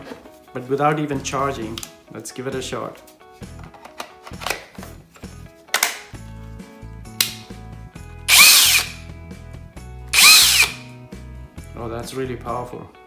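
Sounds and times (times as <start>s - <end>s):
cordless drill motor whine: 8.3s - 9.0s, 10.2s - 10.8s.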